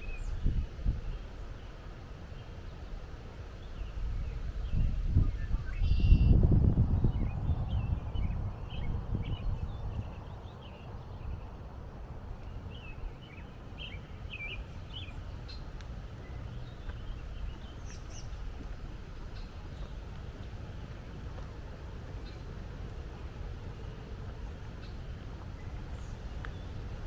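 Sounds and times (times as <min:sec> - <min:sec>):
small birds chirping: 0:07.1 - 0:22.5, 0:23.2 - 0:27.0.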